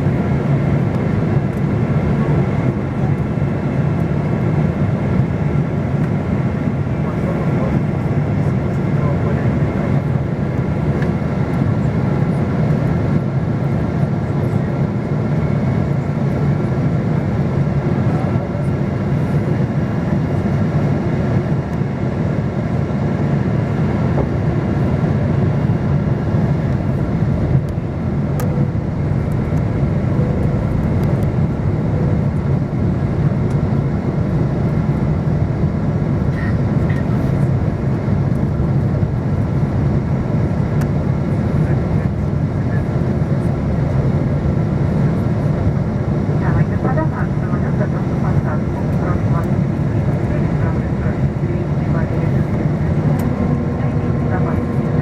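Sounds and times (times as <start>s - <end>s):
jet engines and airflow rumbling: 0.0s - 55.0s
faint whine tones: 26.7s - 34.4s, 46.4s - 55.0s.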